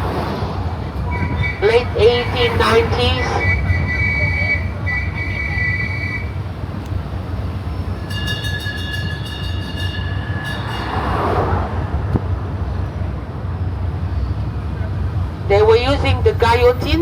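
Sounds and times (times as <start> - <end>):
tourist train rumbling: 0.0 - 17.0
high squeals: 0.8 - 6.6, 7.5 - 12.9.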